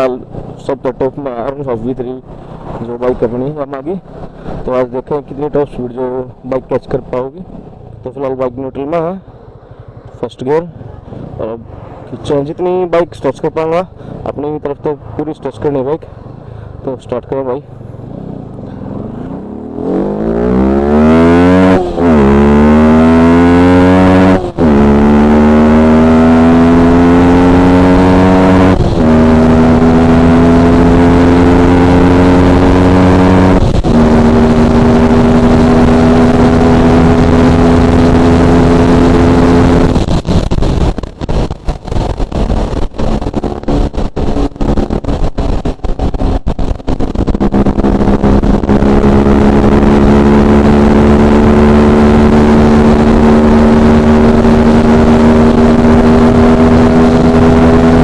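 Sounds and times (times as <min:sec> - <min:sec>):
motorcycle engine accelerating: 0:17.7 - 0:58.0.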